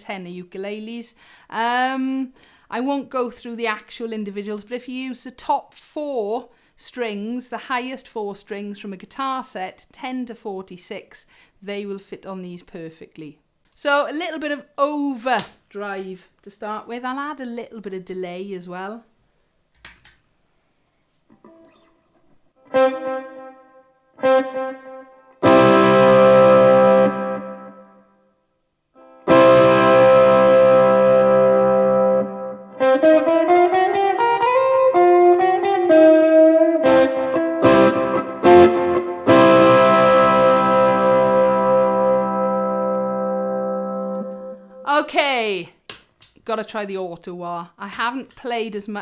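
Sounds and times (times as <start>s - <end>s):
electric ukulele with overdrive: 22.6s - 27.9s, 29.0s - 44.8s.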